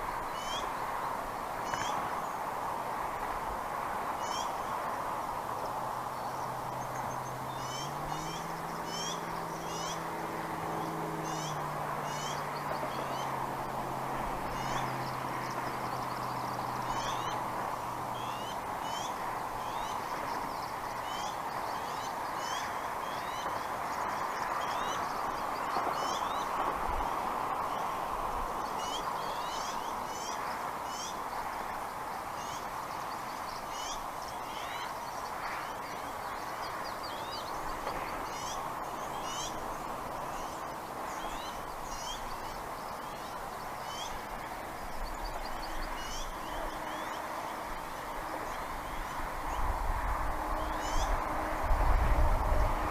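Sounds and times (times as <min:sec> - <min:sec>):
birds chirping: 0:06.0 - 0:26.5, 0:28.5 - 0:49.7.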